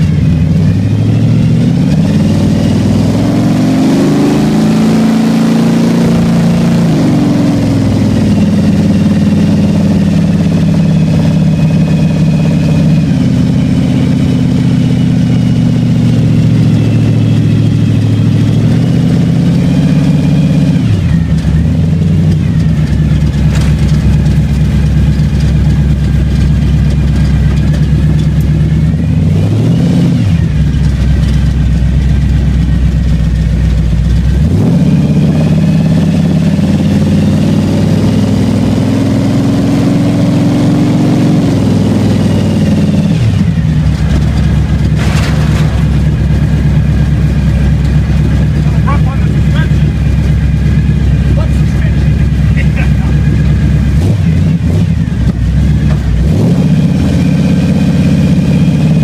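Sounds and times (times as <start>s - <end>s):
car engine and exhaust from cabin: 0.0s - 59.0s.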